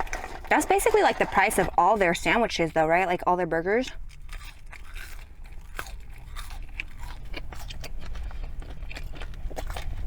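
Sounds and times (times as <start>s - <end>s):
person chewing food: 3.9s - 10.0s.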